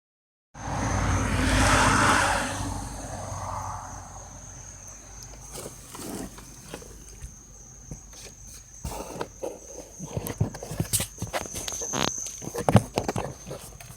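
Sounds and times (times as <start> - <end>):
heater blower air rush: 0.6 - 4.5.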